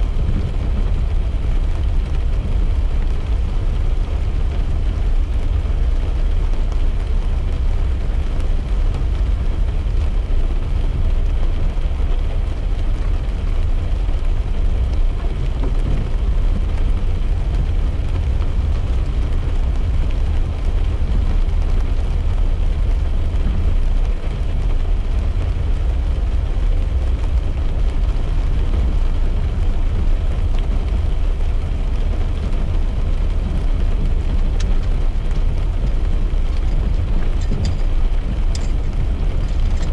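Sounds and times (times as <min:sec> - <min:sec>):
car interior road rumble: 0:00.0 - 0:39.9
rain hissing on car: 0:00.0 - 0:39.9.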